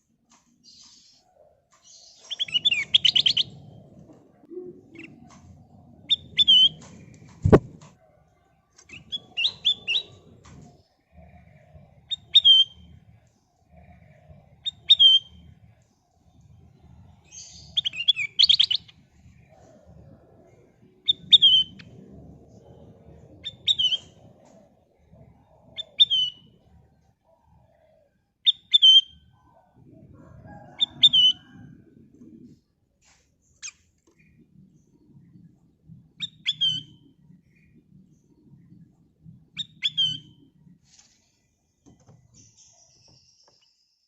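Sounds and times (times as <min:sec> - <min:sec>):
bulbul calling: 0:07.4 - 0:07.8.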